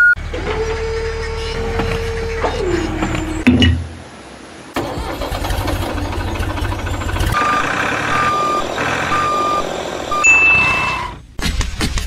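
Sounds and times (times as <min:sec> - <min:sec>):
truck engine running: 0:04.8 - 0:11.4
high steady tone: 0:07.4 - 0:11.1
reversing alarm beeping: 0:07.4 - 0:11.2.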